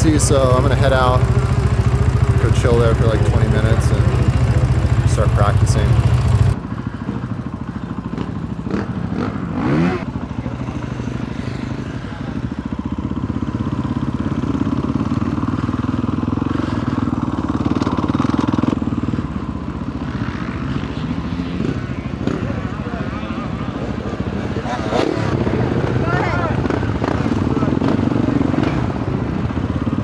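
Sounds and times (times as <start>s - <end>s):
dirt bike engine running: 0.0s - 30.0s.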